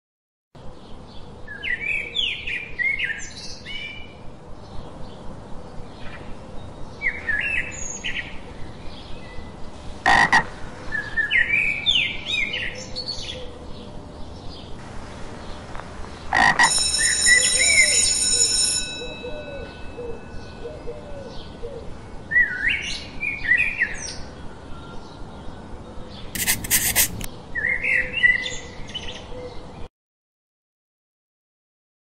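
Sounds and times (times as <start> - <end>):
ringing tone: 16.6 - 21.1.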